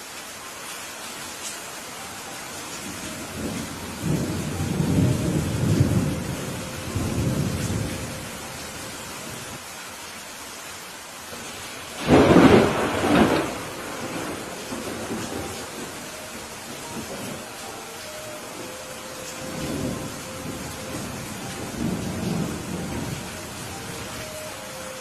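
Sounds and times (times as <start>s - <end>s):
rain hissing: 0.0s - 25.0s
rolling thunder rumble: 3.1s - 8.5s, 12.0s - 17.5s, 19.3s - 24.2s
loud thunderclap: 12.0s - 15.8s.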